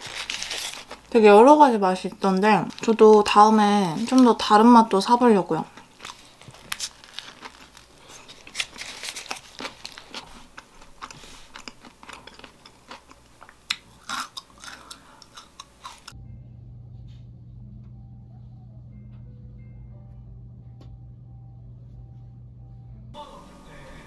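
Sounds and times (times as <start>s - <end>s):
biting and chewing food: 0.0s - 1.1s, 5.7s - 16.2s
paper wrapper crinkling: 0.0s - 1.3s, 2.1s - 4.9s, 6.0s - 12.0s
steady low hum: 10.3s - 24.0s.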